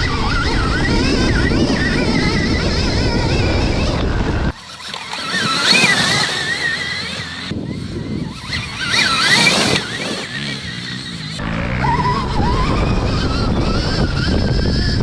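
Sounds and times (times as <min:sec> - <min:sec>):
electric motorbike motor whining: 0:00.0 - 0:15.0
rushing wind: 0:00.0 - 0:15.0
track noise: 0:04.5 - 0:13.4.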